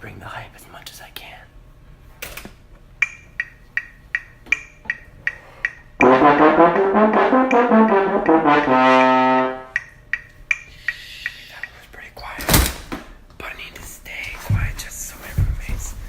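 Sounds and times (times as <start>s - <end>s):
brass instrument run of notes: 6.0s - 9.8s.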